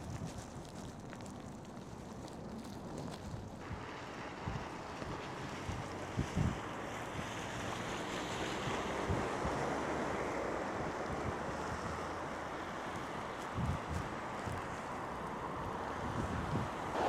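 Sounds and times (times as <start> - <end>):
wind buffeting microphone: 0.0 - 7.9, 13.1 - 17.0
wind rushing in snowstorm: 3.6 - 12.0, 13.3 - 17.0.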